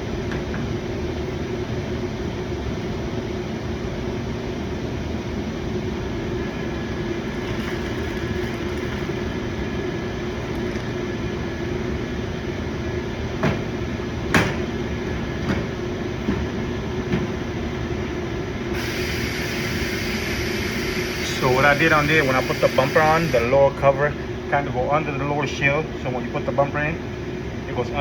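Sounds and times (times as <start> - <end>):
shop background hum: 0.0 - 28.0
bright hiss: 18.8 - 23.5.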